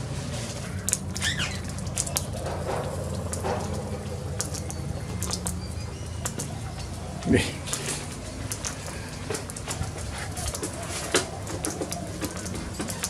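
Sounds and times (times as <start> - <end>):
steady low hum: 0.0 - 12.9
cockatoo chicks chirping: 0.0 - 13.0.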